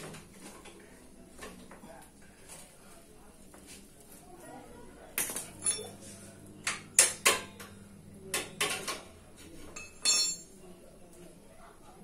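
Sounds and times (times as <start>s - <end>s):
metal tools clinking: 5.2s - 6.0s, 9.7s - 10.5s.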